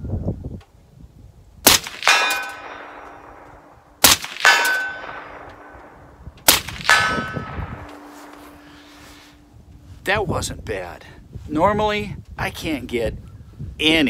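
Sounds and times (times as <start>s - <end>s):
rifle shots: 1.6s - 8.9s
steel target ringing clang: 1.9s - 9.1s.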